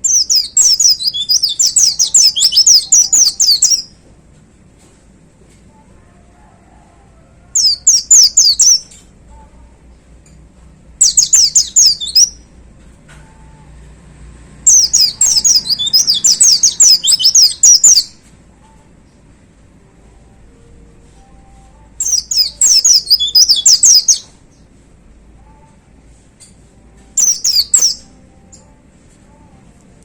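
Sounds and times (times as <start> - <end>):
bird singing high sweeping notes: 0.0 - 3.9, 11.0 - 12.4, 14.7 - 18.1, 22.0 - 24.3, 27.2 - 28.2.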